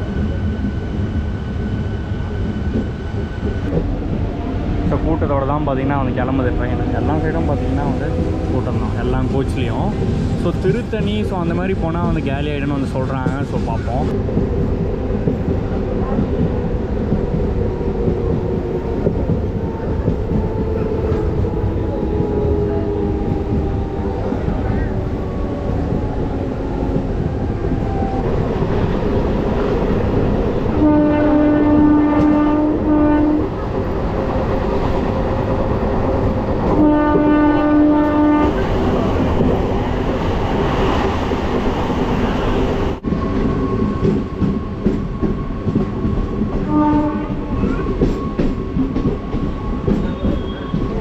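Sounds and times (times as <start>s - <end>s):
train horn: 30.7s - 33.5s, 36.7s - 38.6s, 46.6s - 47.6s.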